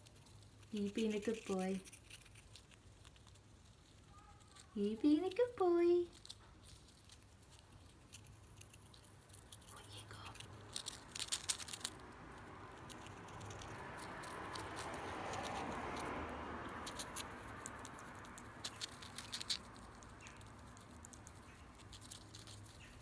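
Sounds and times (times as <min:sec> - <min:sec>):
squirrel clicks and scratches: 0:00.0 - 0:23.0.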